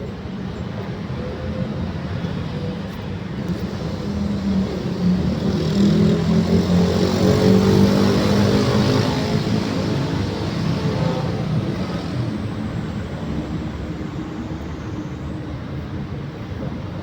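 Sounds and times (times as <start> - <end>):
vehicle engine passing by: 3.5 - 15.4.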